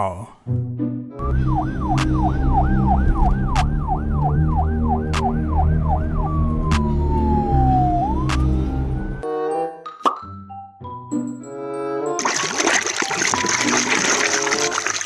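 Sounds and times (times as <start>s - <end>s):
music with regular tick: 1.2s - 9.2s
police siren: 1.2s - 9.2s.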